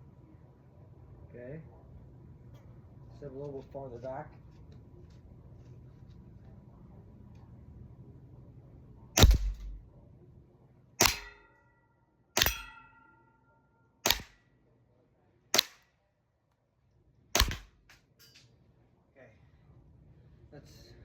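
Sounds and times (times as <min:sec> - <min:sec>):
airsoft pistol shots: 0:09.2 - 0:09.8, 0:11.0 - 0:11.5, 0:12.4 - 0:12.9, 0:14.0 - 0:14.4, 0:15.6 - 0:15.8, 0:17.4 - 0:18.0.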